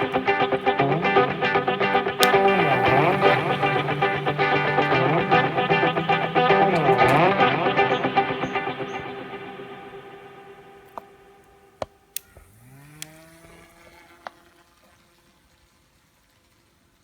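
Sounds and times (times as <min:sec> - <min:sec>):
background music: 0:00.0 - 0:12.2
small electric motor whirring: 0:02.2 - 0:07.1, 0:11.9 - 0:17.0
sharp clicks: 0:02.2 - 0:07.4, 0:10.9 - 0:14.4.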